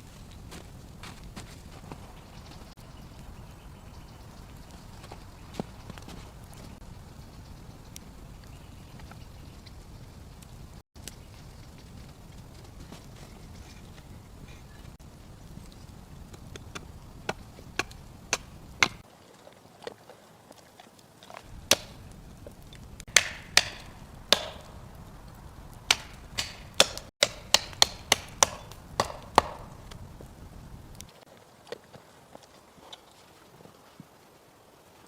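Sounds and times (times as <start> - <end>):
wood being chopped: 16.3 - 19.0, 21.4 - 30.0.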